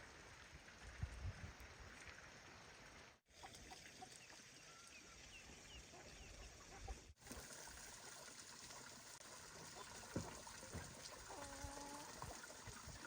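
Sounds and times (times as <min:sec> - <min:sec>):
faint bird chirps: 0:04.2 - 0:07.0.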